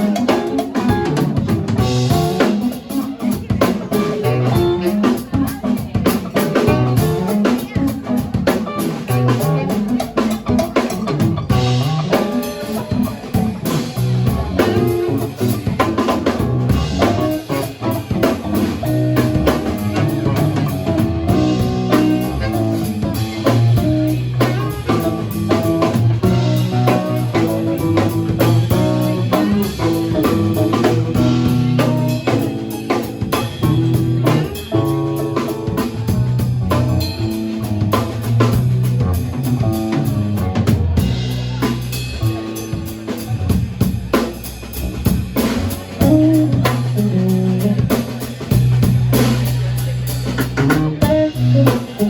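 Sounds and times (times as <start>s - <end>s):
drum kit beat: 0.0s - 52.0s
rock band playing: 0.0s - 52.0s.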